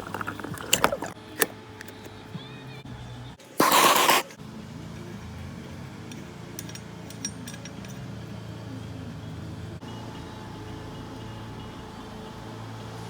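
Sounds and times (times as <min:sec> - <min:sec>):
light clicks and clinks: 0:06.0 - 0:08.3.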